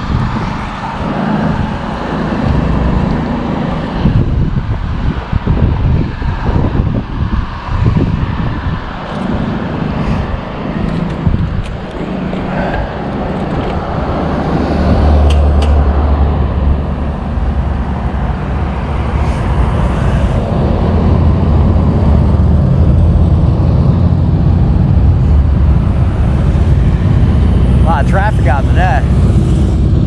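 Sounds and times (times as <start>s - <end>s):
vehicle engine running: 8.3s - 30.0s.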